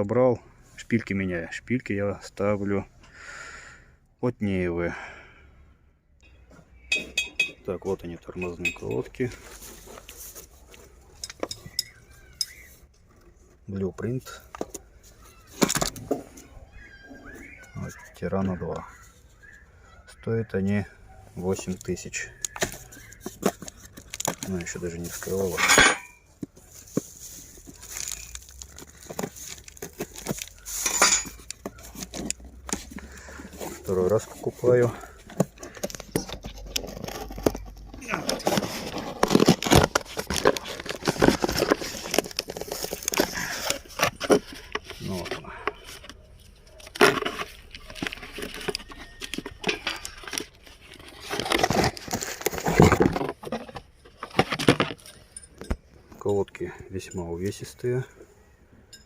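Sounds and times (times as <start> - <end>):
cardboard rustle: 8.9 - 11.1, 21.4 - 25.6, 26.3 - 55.1.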